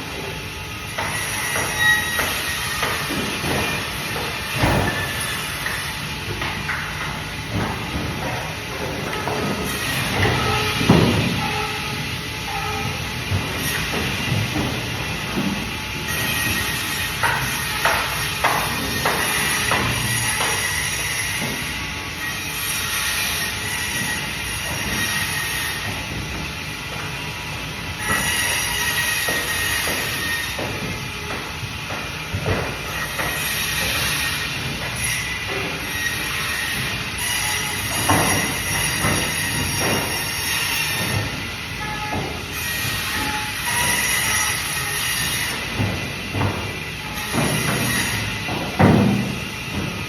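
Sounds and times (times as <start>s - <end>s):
band saw cutting fish: 0.9s - 6.2s, 9.2s - 11.9s, 16.1s - 26.0s, 28.0s - 31.3s, 32.9s - 48.4s.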